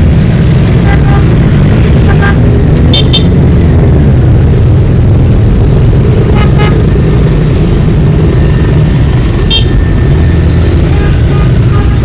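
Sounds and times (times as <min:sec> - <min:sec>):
motorcycle engines passing: 0:00.0 - 0:12.0
motorcycle horn toots: 0:02.1 - 0:03.3, 0:06.3 - 0:06.8, 0:09.5 - 0:09.8, 0:10.9 - 0:12.0.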